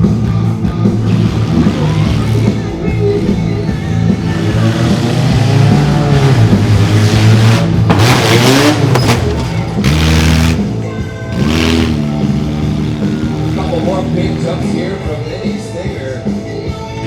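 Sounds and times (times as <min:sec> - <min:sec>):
toy truck engine revving: 0:01.0 - 0:02.8, 0:04.2 - 0:14.6.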